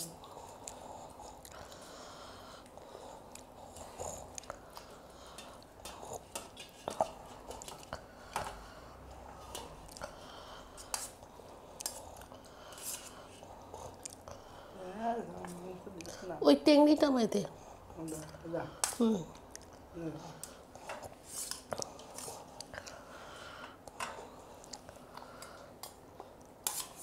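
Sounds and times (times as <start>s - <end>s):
chewing and mouth sounds: 2.6s - 8.0s, 13.6s - 14.4s, 19.3s - 19.9s, 24.6s - 26.6s.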